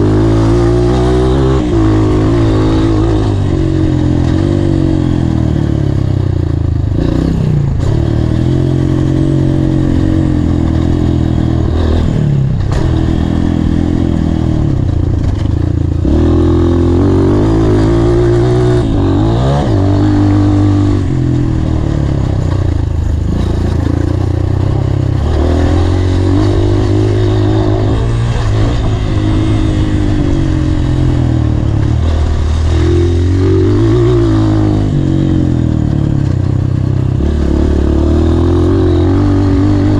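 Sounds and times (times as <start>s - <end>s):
dirt bike engine revving: 0.0s - 39.9s
knocks and clatter from bike: 12.6s - 14.0s, 14.7s - 16.0s.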